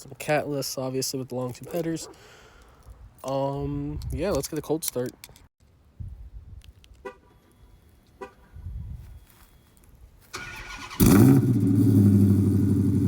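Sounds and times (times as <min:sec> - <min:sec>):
starter cranking: 0:10.4 - 0:11.3
car engine fast idle: 0:10.4 - 0:13.0.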